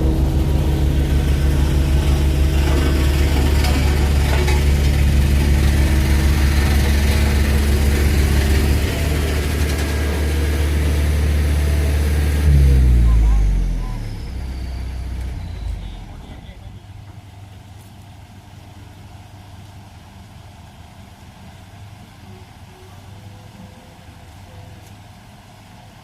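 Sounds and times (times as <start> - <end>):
heavy machine engine running: 0.0 - 17.7.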